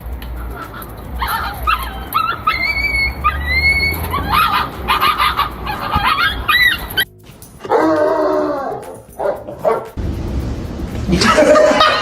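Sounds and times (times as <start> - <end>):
dog whining and yipping: 0.4 - 10.0.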